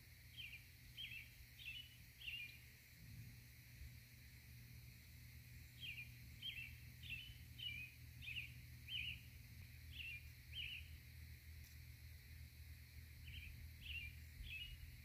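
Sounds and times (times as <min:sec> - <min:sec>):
small bird chirping: 0:00.3 - 0:02.7, 0:05.6 - 0:11.9, 0:13.2 - 0:15.0.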